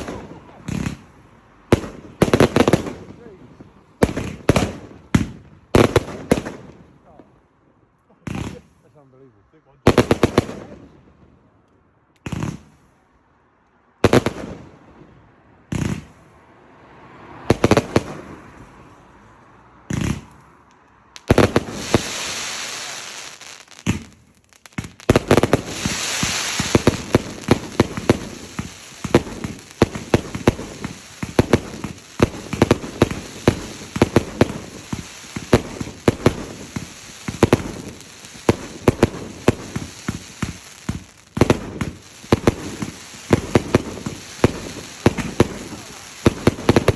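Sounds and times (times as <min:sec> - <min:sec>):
fireworks crackling pops: 0:00.0 - 0:07.2, 0:08.2 - 0:08.8, 0:11.6 - 0:13.0, 0:15.6 - 0:16.3, 0:19.8 - 0:46.9
fireworks loud bangs: 0:00.0 - 0:07.2, 0:08.2 - 0:08.7, 0:12.2 - 0:12.8, 0:14.0 - 0:15.1, 0:15.7 - 0:16.3, 0:17.4 - 0:18.7, 0:19.8 - 0:20.5, 0:21.2 - 0:46.9.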